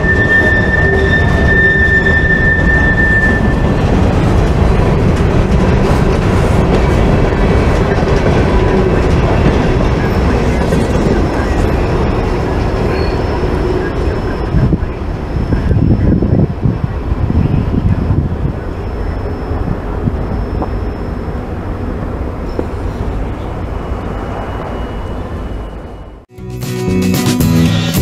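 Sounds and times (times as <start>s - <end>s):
high-pitched wheel squeal: 0.0s - 3.9s, 10.0s - 16.5s, 18.7s - 21.5s, 22.5s - 26.2s
steel wheels rumbling on track: 0.0s - 25.7s.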